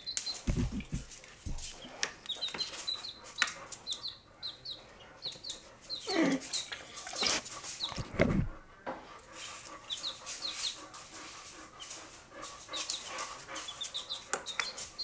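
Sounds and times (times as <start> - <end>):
baby chicks peeping: 0.0 - 8.5, 9.3 - 15.0
dog sniffing: 5.2 - 15.0.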